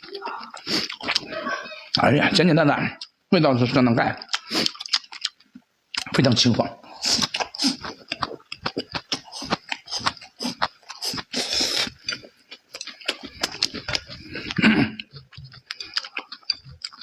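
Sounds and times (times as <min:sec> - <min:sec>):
chewing mouth sounds: 0:00.0 - 0:01.3, 0:04.2 - 0:06.2, 0:07.0 - 0:17.0
hissing breath intake: 0:11.4 - 0:11.9.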